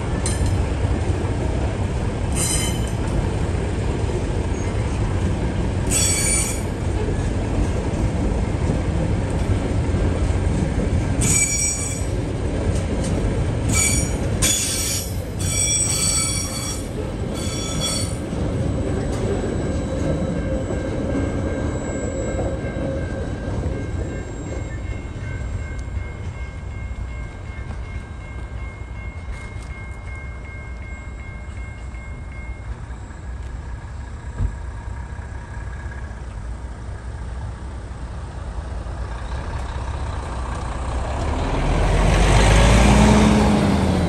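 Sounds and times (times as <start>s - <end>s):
freight train wagons rumbling: 0.0s - 44.0s
wheel squeal: 2.3s - 3.0s, 5.9s - 6.8s, 11.2s - 12.2s, 13.7s - 22.9s
diesel truck engine: 33.9s - 44.0s.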